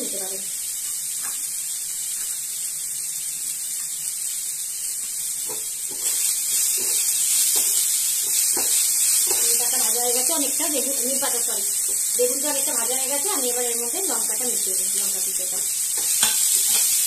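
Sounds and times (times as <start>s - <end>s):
vegetables sizzling in a wok: 0.0s - 17.0s
spatula tapping a pan: 5.4s - 9.6s, 15.6s - 17.0s.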